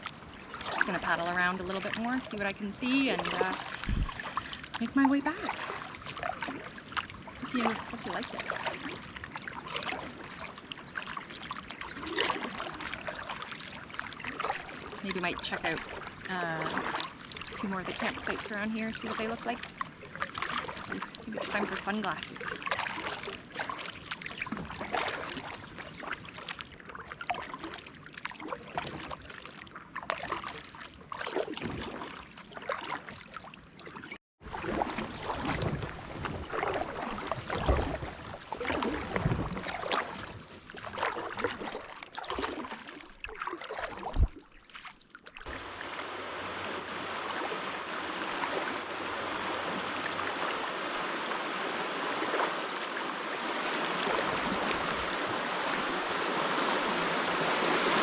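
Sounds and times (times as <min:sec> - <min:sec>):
kayak paddle strokes: 0:00.0 - 0:58.0
water splashes and drips: 0:00.0 - 0:58.0
creek water rushing over rapids: 0:45.5 - 0:58.0.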